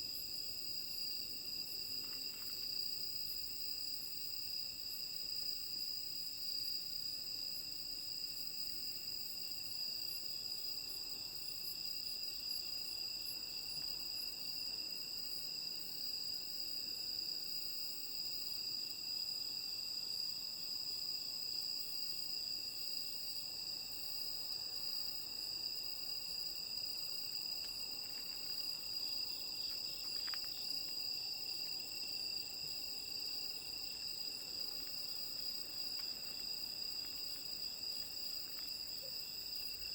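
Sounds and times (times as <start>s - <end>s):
crickets and insects singing: 0.0s - 39.9s.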